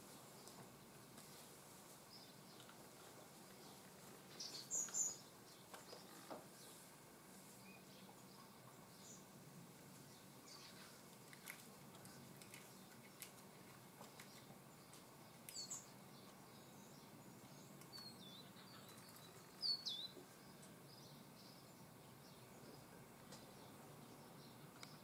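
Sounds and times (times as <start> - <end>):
bird chirps: 4.4 - 6.8, 15.5 - 25.0.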